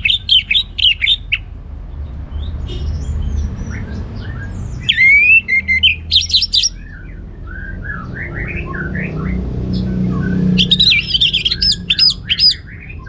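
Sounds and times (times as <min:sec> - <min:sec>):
thrush singing: 0:03.3 - 0:13.0.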